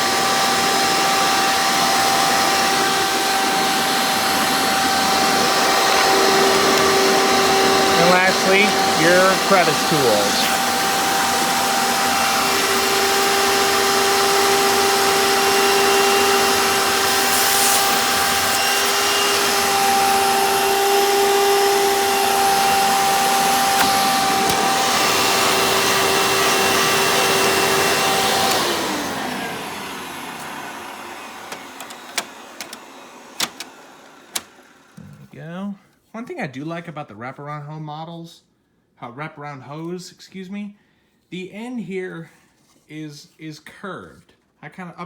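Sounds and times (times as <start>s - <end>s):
vacuum cleaner whining: 0.0s - 35.2s
vacuum motor winding down: 0.0s - 35.2s.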